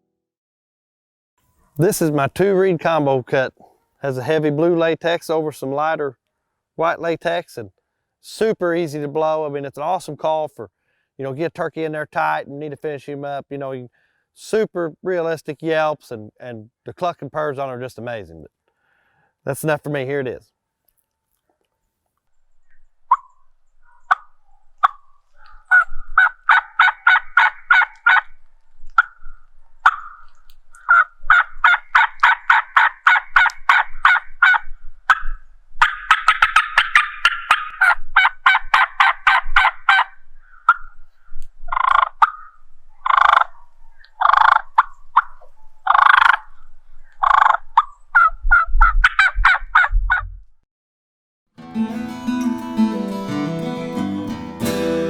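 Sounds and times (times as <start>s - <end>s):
turkey call yelping: 23.1s - 28.3s, 29.0s - 40.9s, 41.7s - 46.5s, 47.2s - 49.9s.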